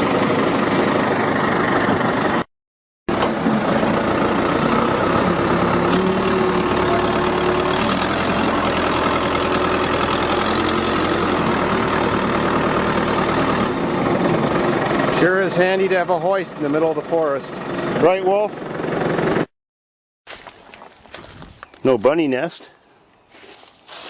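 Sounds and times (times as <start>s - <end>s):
car lift engine running: 3.1s - 19.5s.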